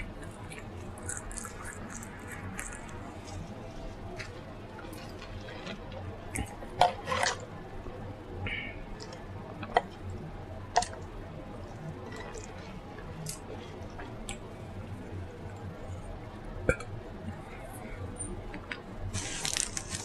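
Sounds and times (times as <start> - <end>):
wet mouth smacking and chewing: 0.2 - 3.5.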